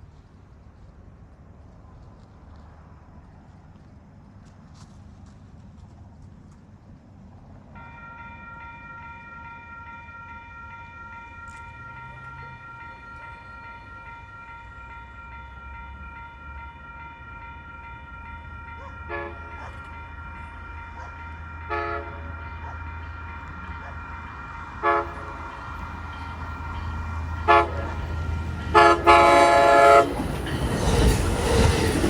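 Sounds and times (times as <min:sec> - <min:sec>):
train rumbling: 0:00.0 - 0:32.0
short tonal horn blasts: 0:18.2 - 0:30.2.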